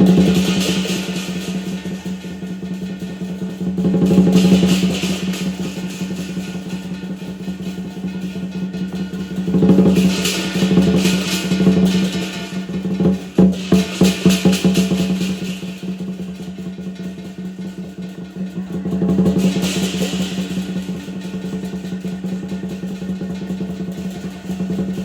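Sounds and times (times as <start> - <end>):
drum beaten in fast rolls: 0.0 - 25.0.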